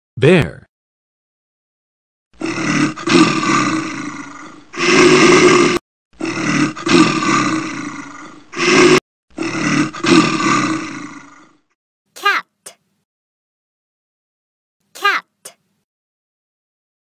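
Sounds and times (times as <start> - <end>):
bear roaring and growling: 2.4 - 11.8.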